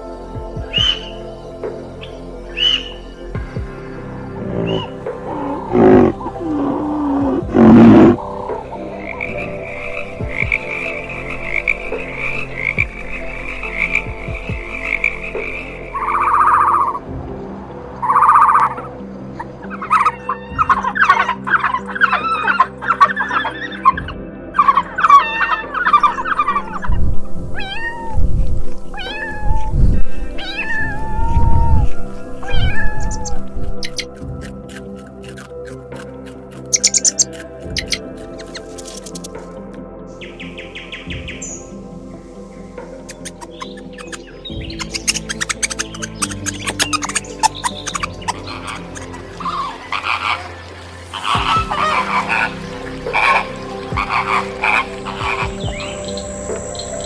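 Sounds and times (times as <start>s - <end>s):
background music: 0.0s - 57.0s
loud animal calls: 4.3s - 12.9s, 19.6s - 24.0s, 36.7s - 39.4s, 43.0s - 57.0s
cat meowing: 27.6s - 28.2s, 28.9s - 29.8s, 30.4s - 33.4s.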